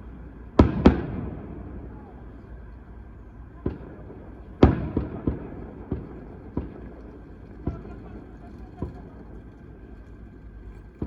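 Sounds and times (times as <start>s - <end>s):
low background rumble: 0.0s - 11.0s
fireworks bangs: 0.6s - 2.3s, 3.6s - 9.8s.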